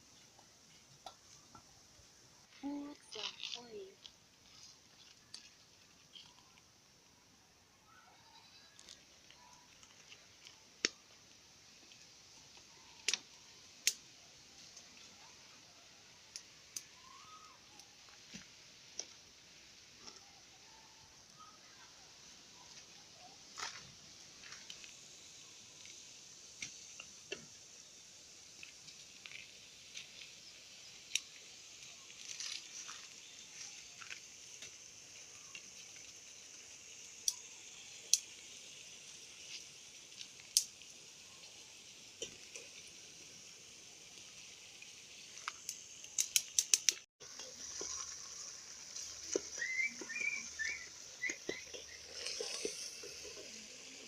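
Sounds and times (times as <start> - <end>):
food sizzling in oil: 0.0 - 54.0
oil popping: 23.5 - 54.0.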